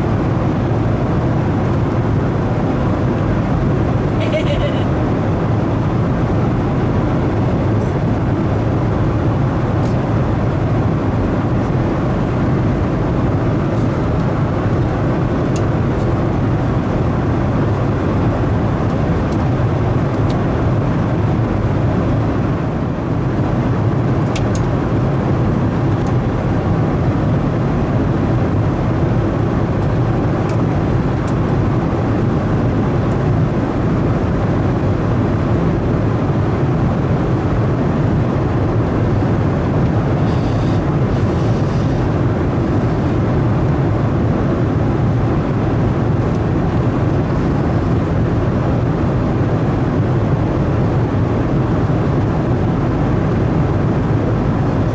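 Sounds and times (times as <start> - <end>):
airplane cabin noise: 0.0 - 54.9.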